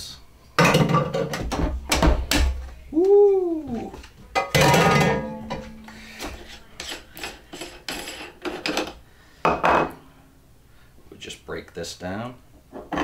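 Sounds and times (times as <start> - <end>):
metal clang: 4.4 - 5.8.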